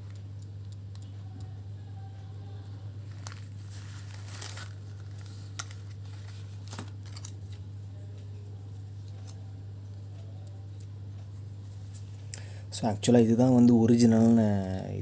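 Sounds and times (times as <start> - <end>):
steady low hum: 0.0 - 15.0
packaging crinkling and tearing: 3.1 - 7.6.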